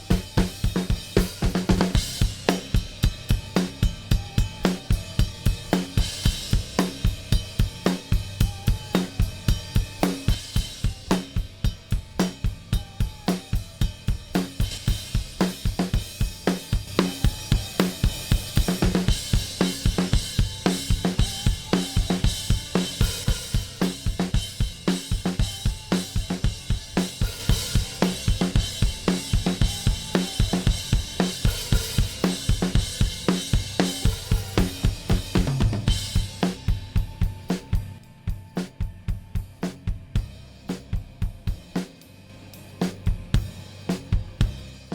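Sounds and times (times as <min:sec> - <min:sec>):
drum kit playing a groove: 0:00.0 - 0:44.9.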